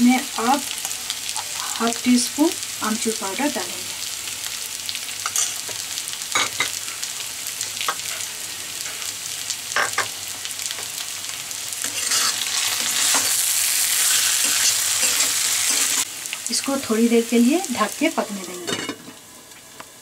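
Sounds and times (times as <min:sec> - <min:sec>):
food sizzling in a pan: 0:00.0 - 0:20.0
spoon scraping a pan: 0:11.8 - 0:13.4, 0:14.0 - 0:16.0.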